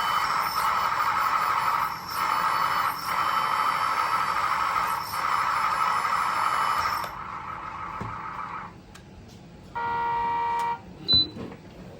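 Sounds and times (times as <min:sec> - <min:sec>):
steady electronic beep: 0:00.0 - 0:07.2
motor whirring: 0:00.0 - 0:08.7.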